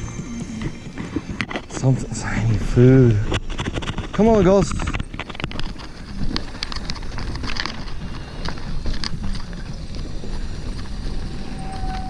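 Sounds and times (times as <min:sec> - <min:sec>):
bike tyre rumble on dirt: 0:00.1 - 0:12.0
bike clicks and rattles: 0:02.5 - 0:11.4
wind on microphone: 0:02.5 - 0:12.0.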